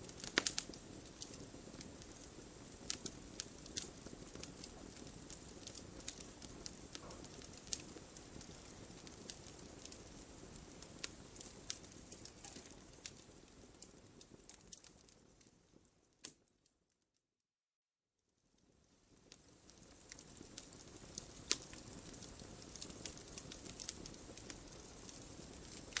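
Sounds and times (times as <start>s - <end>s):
faint steady background noise: 0.0s - 16.7s, 18.3s - 26.0s
wood fire crackling and popping: 0.0s - 16.7s, 18.6s - 26.0s.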